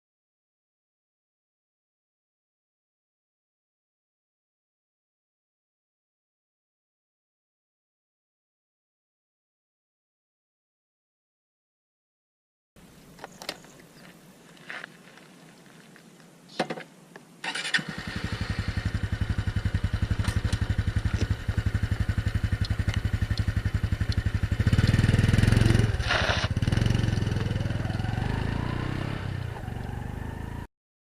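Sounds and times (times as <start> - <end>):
motorcycle pulling away: 17.4 - 30.7
motorcycle engine idling: 17.8 - 28.6
starter clicks: 22.2 - 24.3.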